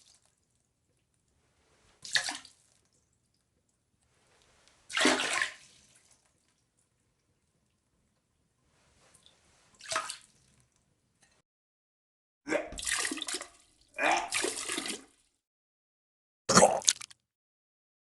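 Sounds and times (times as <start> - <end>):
vomit splashing into water: 4.9 - 6.2.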